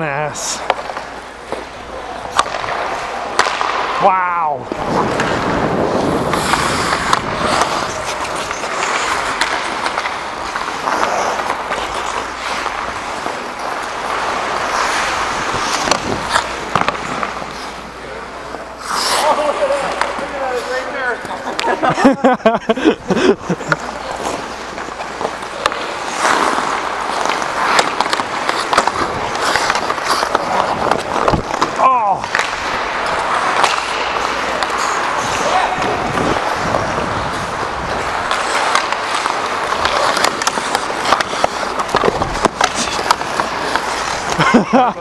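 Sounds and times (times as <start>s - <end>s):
sticks striking puck: 0.0s - 17.9s, 18.8s - 21.9s, 23.2s - 44.9s
hockey skates scraping: 0.0s - 45.0s.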